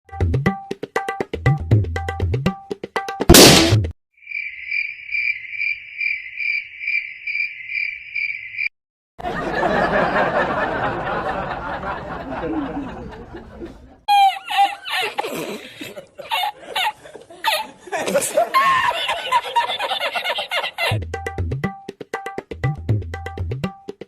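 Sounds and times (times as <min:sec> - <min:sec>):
cricket-like chirping: 0:04.2 - 0:08.7
person laughing: 0:12.2 - 0:21.0.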